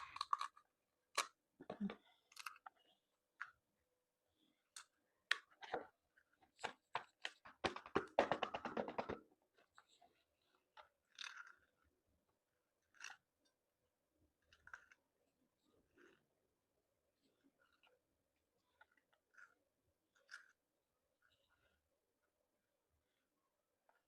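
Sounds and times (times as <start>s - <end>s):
eating seafood crunching: 0.0s - 0.6s.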